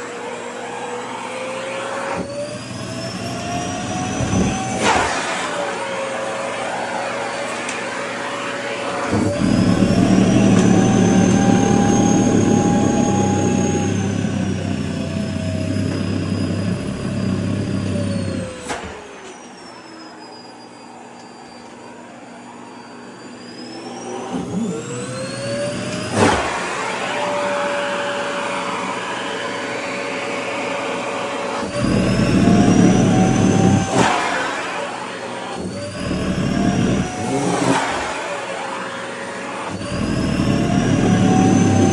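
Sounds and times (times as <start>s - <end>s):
vacuum cleaner motor: 0.0s - 41.9s
heavy low rumble: 9.1s - 18.4s.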